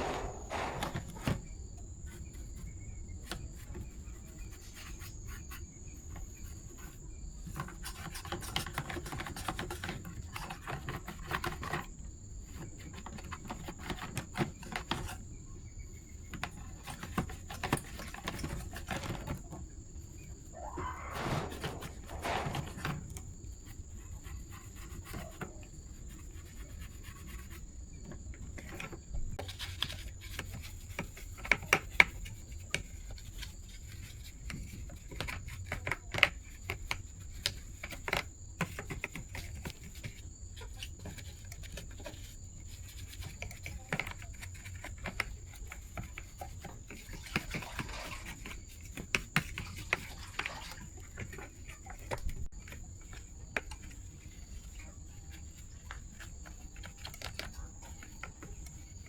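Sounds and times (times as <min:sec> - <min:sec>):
scraping or rubbing sound: 0:00.0 - 0:01.4, 0:20.6 - 0:25.3, 0:47.1 - 0:48.7
clicks taps and scrapes: 0:00.0 - 0:01.5, 0:02.1 - 0:15.3, 0:15.9 - 0:59.0.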